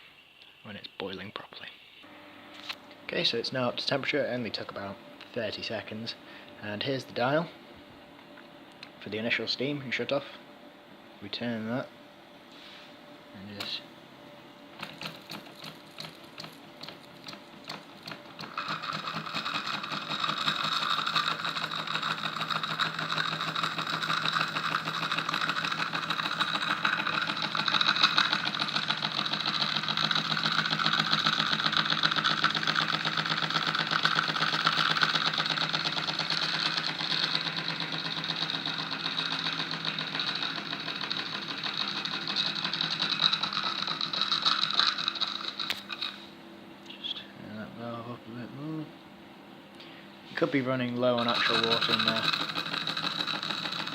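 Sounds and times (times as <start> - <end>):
steam engine clattering: 51.2 - 53.9.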